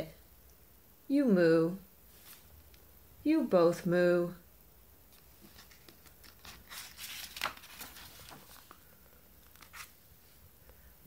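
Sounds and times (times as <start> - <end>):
faint rustling: 2.0 - 2.9, 5.1 - 10.8.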